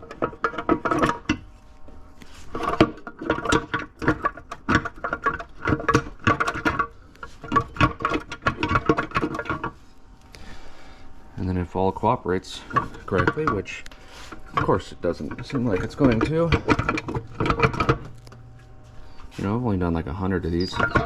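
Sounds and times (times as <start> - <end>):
metal case knocking on shafts: 12.6 - 18.4.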